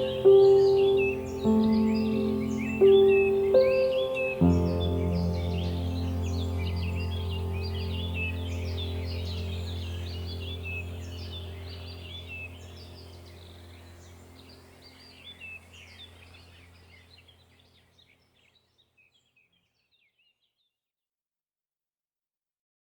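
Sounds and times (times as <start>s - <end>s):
low hum: 0.0s - 17.6s
small birds chirping: 0.0s - 20.8s.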